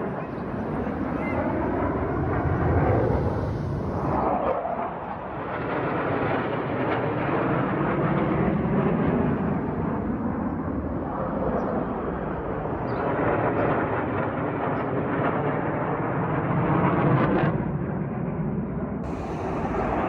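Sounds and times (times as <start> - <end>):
aircraft engine rumble: 0.0 - 4.5, 18.8 - 20.0.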